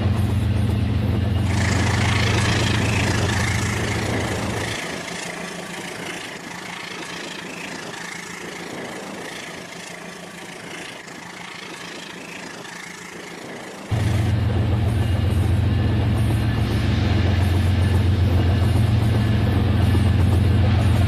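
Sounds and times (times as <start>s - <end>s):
loud low hum: 1.5s - 5.4s, 13.9s - 15.8s
toy train whirring: 1.5s - 13.9s.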